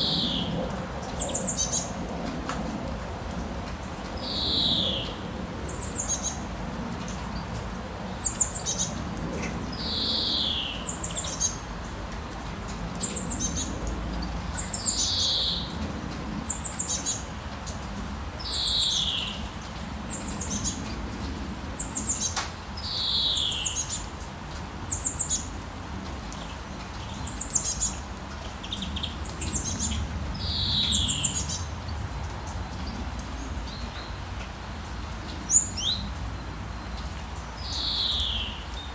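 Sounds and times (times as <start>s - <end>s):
rain hiss: 0.0s - 38.9s
birds calling: 27.0s - 34.2s.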